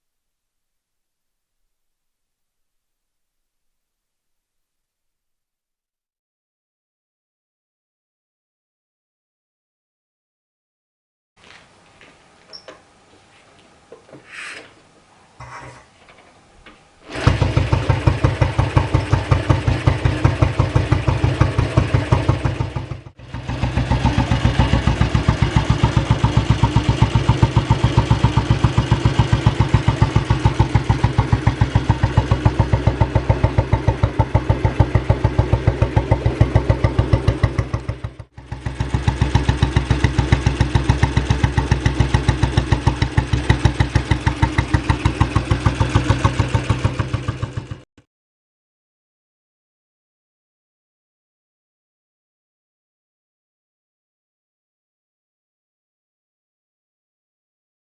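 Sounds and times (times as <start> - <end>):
motorcycle engine idling: 17.1 - 47.9.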